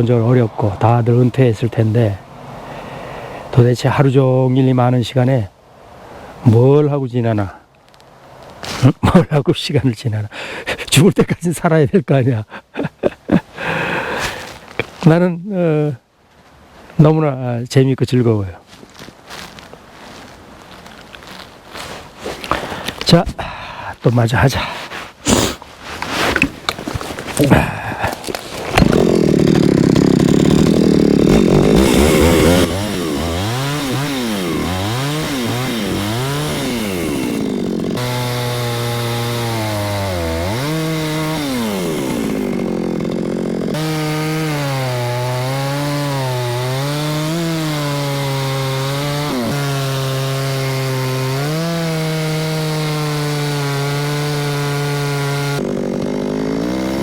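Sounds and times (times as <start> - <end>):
chainsaw revving: 26.1 - 57.0.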